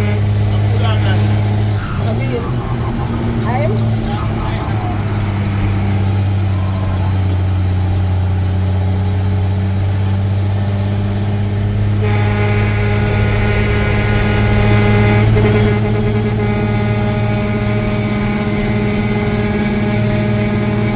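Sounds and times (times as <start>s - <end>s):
truck engine running: 0.0s - 20.9s
pitched tone with overtones: 1.2s - 7.9s.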